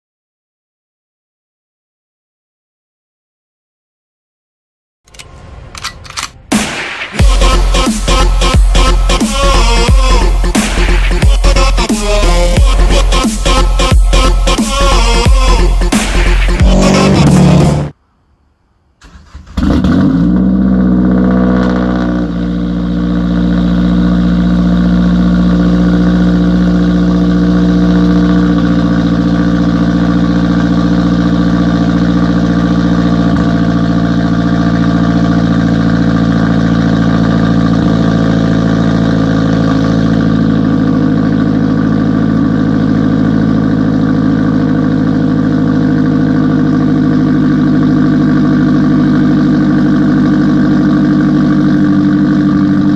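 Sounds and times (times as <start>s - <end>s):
car engine starting and idling: 5.1s - 18.0s, 19.0s - 52.9s.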